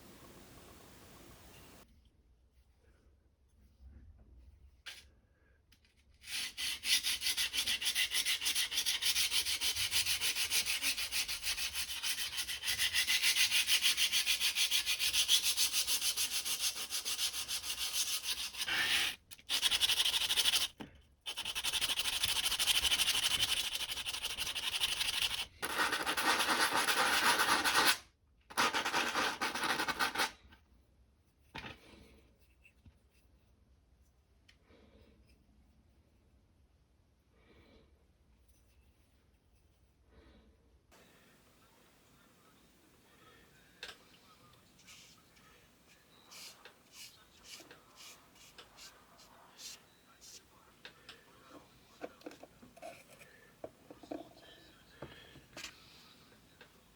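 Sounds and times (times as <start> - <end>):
hand sanding with sandpaper: 6.2 - 28.0, 44.8 - 45.2, 45.9 - 50.5.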